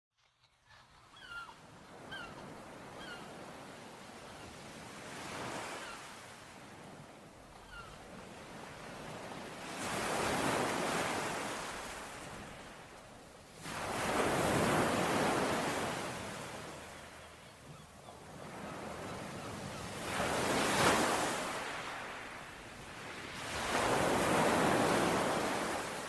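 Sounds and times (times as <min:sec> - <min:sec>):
faint bird chirps: 0:00.4 - 0:02.4, 0:16.8 - 0:20.0
sea waves breaking on shore: 0:01.1 - 0:26.0.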